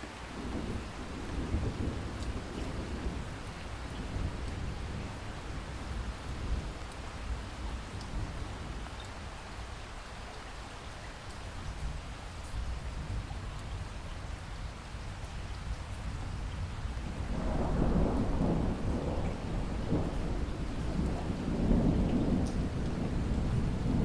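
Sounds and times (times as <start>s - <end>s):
thunder rumbling: 0.0s - 8.9s, 16.3s - 24.0s
steady rain falling: 0.0s - 24.0s.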